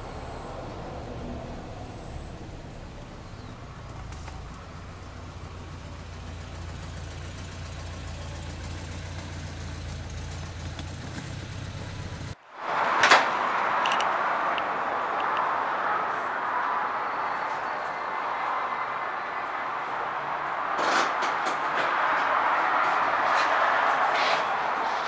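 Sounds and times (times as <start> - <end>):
car engine droning: 0.0 - 12.4
hissy background noise: 0.0 - 20.8.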